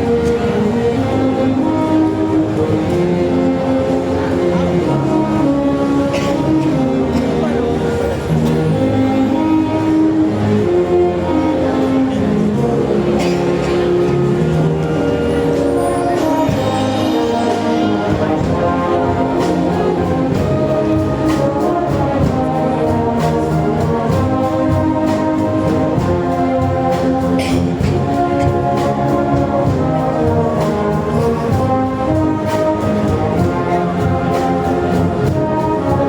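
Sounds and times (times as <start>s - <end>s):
brass band playing: 0.0s - 36.0s
steady percussion beat: 12.3s - 36.0s.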